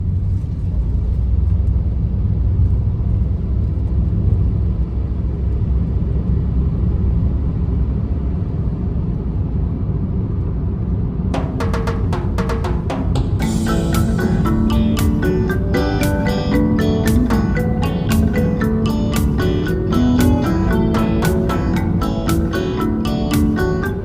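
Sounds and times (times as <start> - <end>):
car road and engine rumble: 0.0 - 24.0
marimba-like music: 11.4 - 24.0.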